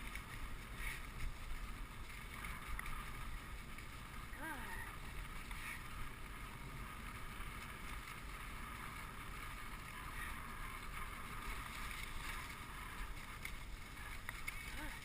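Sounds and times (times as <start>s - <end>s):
sled runners hissing over snow: 0.0s - 15.0s.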